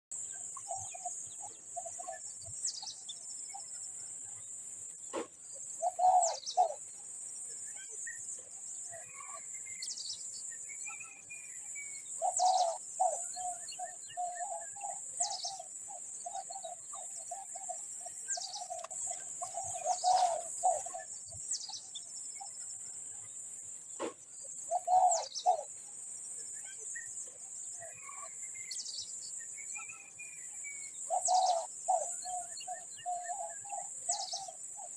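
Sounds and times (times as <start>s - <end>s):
bird low pulsed calls: 18.3s - 21.1s.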